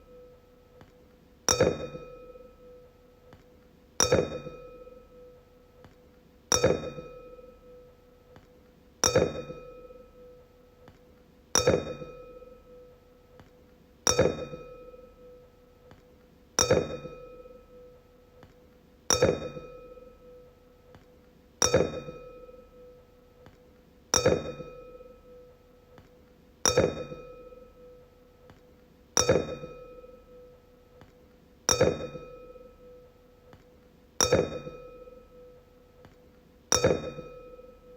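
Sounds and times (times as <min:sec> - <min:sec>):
wine glass tapped ringing: 0:01.5 - 0:02.8, 0:04.0 - 0:05.3, 0:06.5 - 0:07.6, 0:09.0 - 0:10.1, 0:11.6 - 0:12.8, 0:14.1 - 0:15.3, 0:16.6 - 0:17.9, 0:19.1 - 0:20.4, 0:24.2 - 0:25.5, 0:26.7 - 0:28.0, 0:29.2 - 0:30.5, 0:31.7 - 0:33.0, 0:34.2 - 0:35.6, 0:36.7 - 0:37.9.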